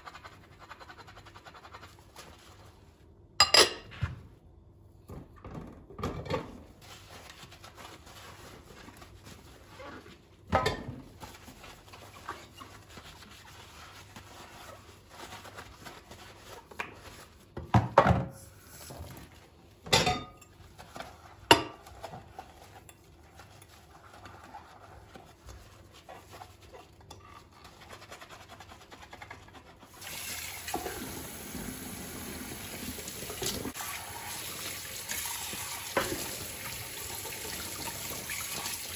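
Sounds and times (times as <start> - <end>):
dishes clinking and knocking: 3.4 - 3.9, 19.8 - 20.5
tap water running: 29.9 - 38.9.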